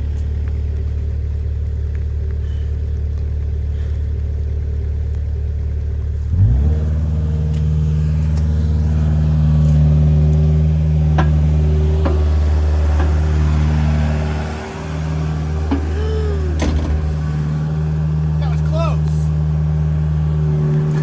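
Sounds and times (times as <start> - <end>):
engine revving: 0.0 - 21.0
metallic clanks: 7.5 - 18.4.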